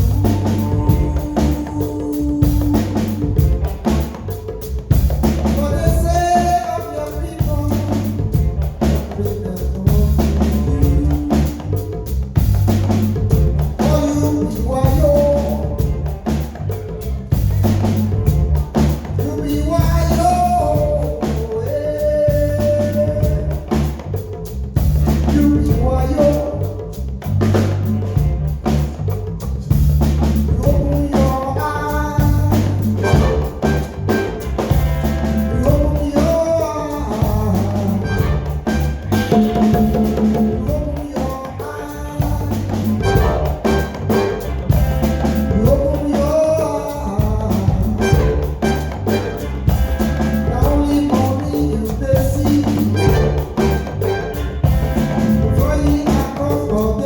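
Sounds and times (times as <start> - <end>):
person singing: 0.0 - 4.8, 5.4 - 12.2, 13.0 - 24.4, 25.1 - 27.1, 30.3 - 44.7, 45.3 - 49.6, 50.2 - 54.5, 55.2 - 57.0
drum kit: 0.0 - 57.0
repeating bass line: 0.0 - 57.0
pitched melody lines: 32.2 - 57.0.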